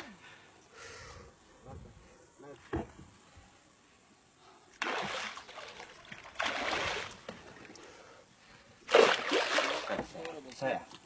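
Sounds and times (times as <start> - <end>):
river water splashing: 4.8 - 7.8, 8.8 - 10.0
water sloshing: 4.8 - 7.9, 8.8 - 10.3.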